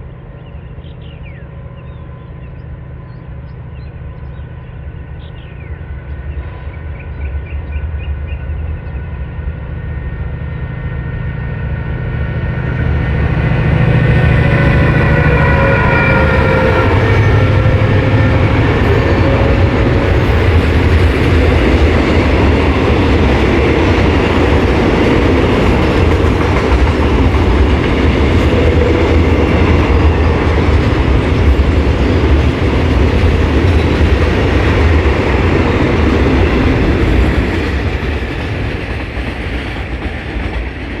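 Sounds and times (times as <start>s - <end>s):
diesel locomotive engine: 0.0s - 41.0s.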